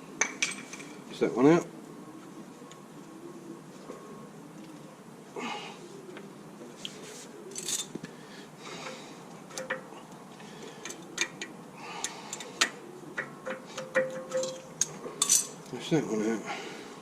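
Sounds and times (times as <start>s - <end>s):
metal clinks and scrapes: 7.5s - 8.0s, 13.2s - 15.7s.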